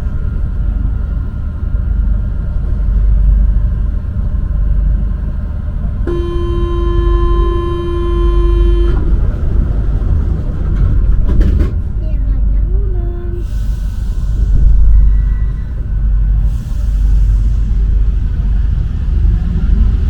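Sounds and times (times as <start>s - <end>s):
train rumbling: 0.0s - 20.0s
door closing warning buzzer: 6.1s - 9.2s.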